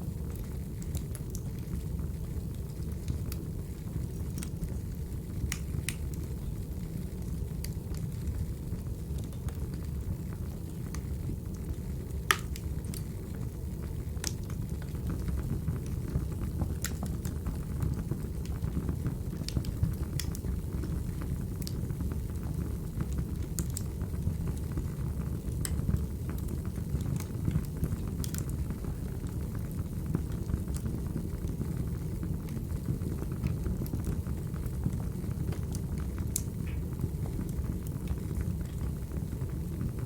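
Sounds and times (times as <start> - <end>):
wood fire crackling: 0.0 - 40.0
sharp pops of fire: 12.2 - 13.1, 19.4 - 20.9.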